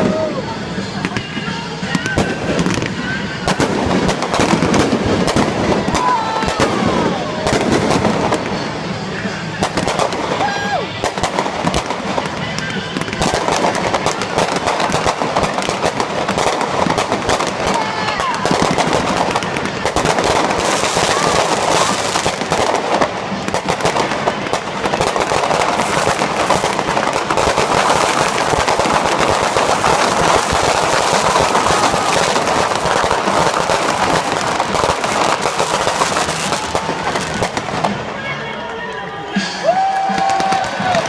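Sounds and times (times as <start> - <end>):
fireworks banging and crackling: 0.0 - 41.0.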